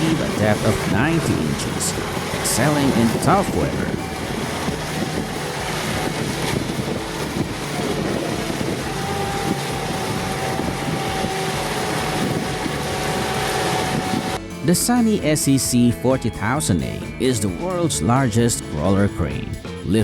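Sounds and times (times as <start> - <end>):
wind noise on microphone: 0.0 - 14.4
heavy machine engine running: 0.0 - 14.9.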